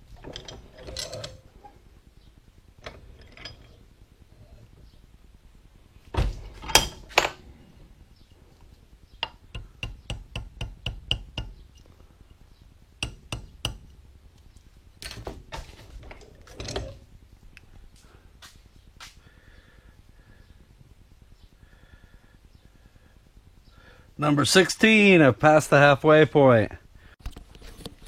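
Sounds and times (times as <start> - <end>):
steel rings clinking and knocking: 0.2 - 1.4, 2.8 - 3.8.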